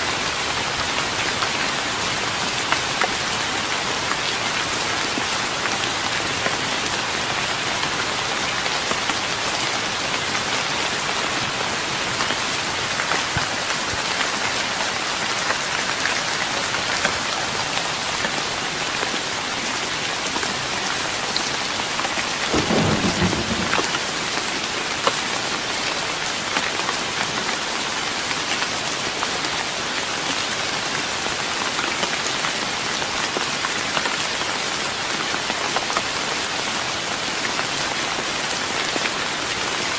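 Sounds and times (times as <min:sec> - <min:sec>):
rain on a wooden deck: 0:00.0 - 0:39.9
low rumble of thunder: 0:22.5 - 0:24.6.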